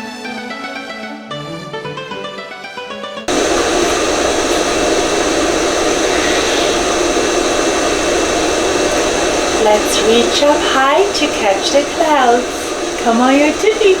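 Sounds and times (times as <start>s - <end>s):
background music: 0.0s - 3.3s
heavy rain rushing: 3.3s - 14.0s.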